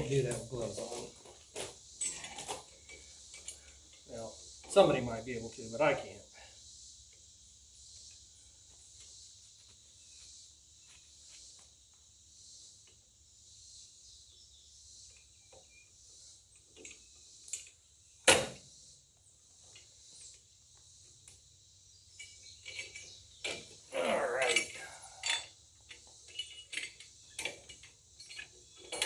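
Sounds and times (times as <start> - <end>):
insect chirring: 0.0 - 29.0
sharp knock of hitch hardware: 18.3 - 18.6
hitch parts clicking: 22.5 - 29.0.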